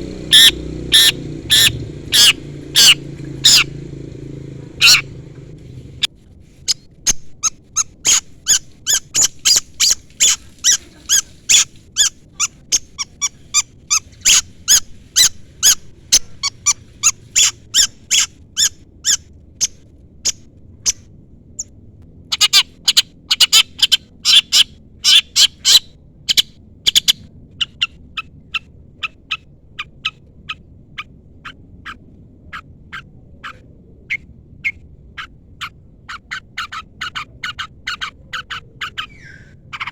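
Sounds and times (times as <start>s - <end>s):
shrike harsh calls: 0.0s - 6.1s.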